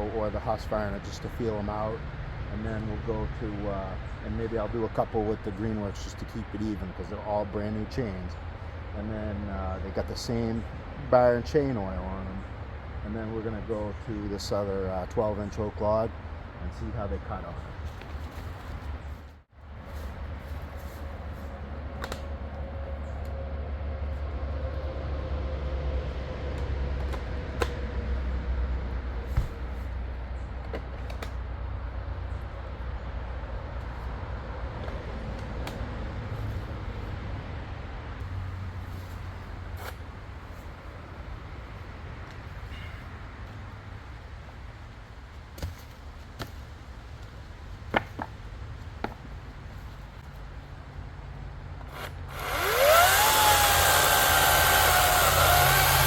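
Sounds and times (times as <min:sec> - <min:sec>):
electric chainsaw cutting log: 0:51.8 - 0:56.0.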